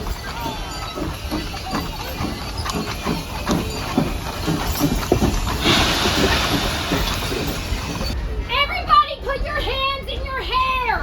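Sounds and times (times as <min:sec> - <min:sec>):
train wheels clattering on track: 0:00.0 - 0:08.2.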